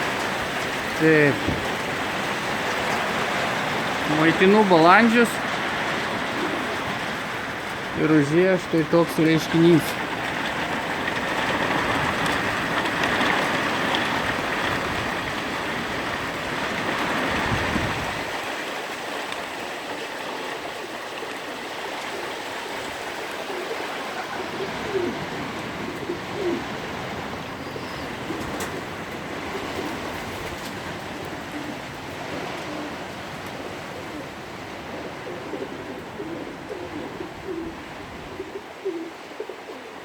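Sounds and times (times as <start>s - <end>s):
hailstones striking: 0.0s - 27.5s
pigeons cooing: 0.0s - 40.0s.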